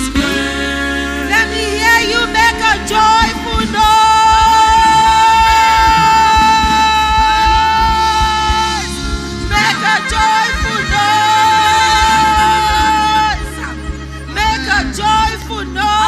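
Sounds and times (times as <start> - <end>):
instrumental backing: 0.0 - 16.0
person singing gospel: 0.0 - 16.0.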